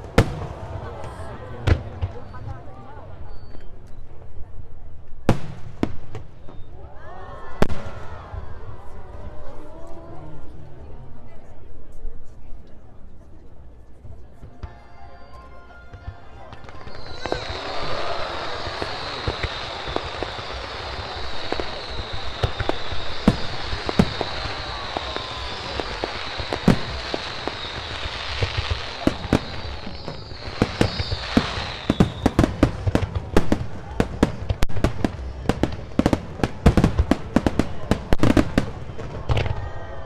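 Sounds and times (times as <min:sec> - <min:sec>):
fireworks booming and crackling: 0:00.0 - 0:03.6, 0:05.2 - 0:06.7, 0:14.4 - 0:40.0.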